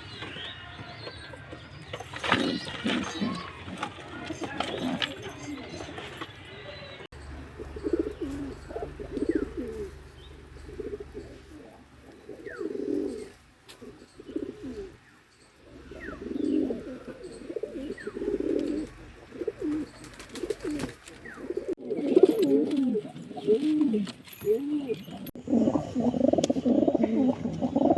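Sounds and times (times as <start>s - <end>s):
pigeons cooing: 2.2s - 5.8s, 7.1s - 27.9s
faint high bird chirps: 6.8s - 22.3s.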